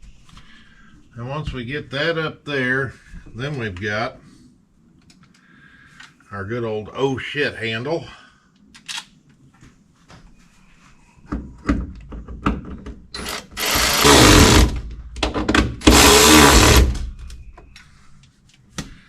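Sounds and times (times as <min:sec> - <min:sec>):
power drill driving screws: 0:13.2 - 0:14.8, 0:15.8 - 0:17.1.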